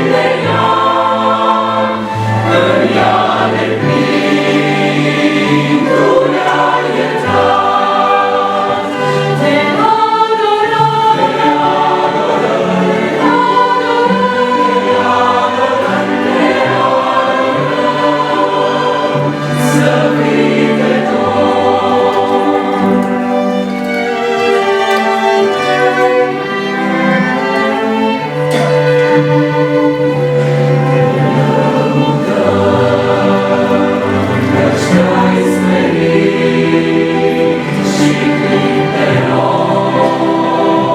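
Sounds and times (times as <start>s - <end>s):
choir singing worship song: 0.0s - 40.9s
musical accompaniment: 0.0s - 40.9s.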